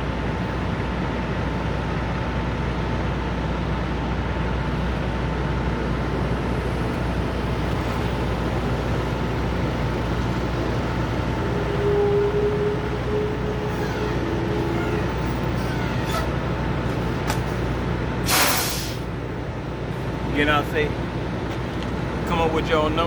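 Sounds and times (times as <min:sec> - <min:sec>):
truck engines idling: 0:00.0 - 0:23.0.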